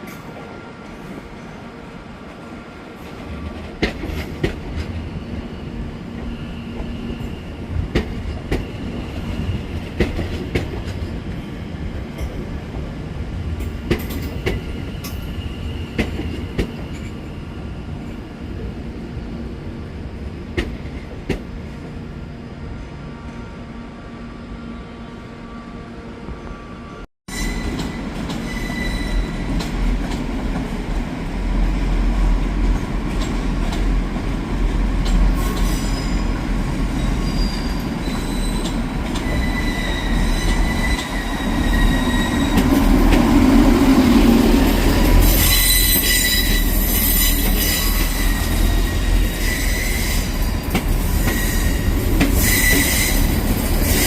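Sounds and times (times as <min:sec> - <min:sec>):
train rumbling on rails: 0:00.0 - 0:54.0
high-pitched wheel squeal: 0:37.0 - 0:42.6, 0:45.3 - 0:50.3, 0:51.2 - 0:53.3.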